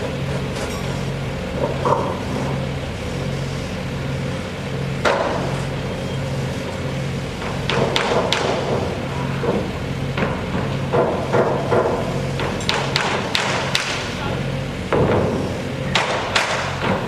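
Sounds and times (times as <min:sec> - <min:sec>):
construction machinery pulsing hum: 0:00.0 - 0:17.0
sharp knocks and clicks: 0:07.4 - 0:14.0.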